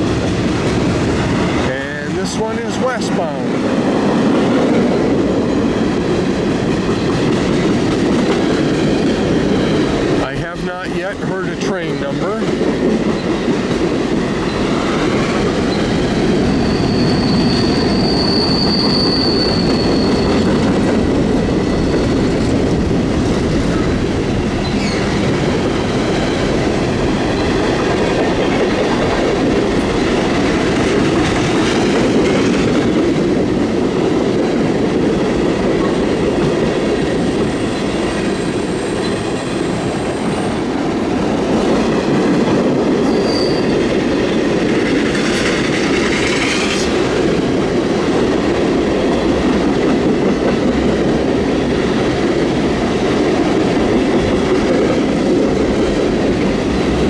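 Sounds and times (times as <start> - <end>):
train wheels rumbling on rail: 0.0 - 57.0
high wheel squeals: 14.4 - 20.8, 43.0 - 44.4.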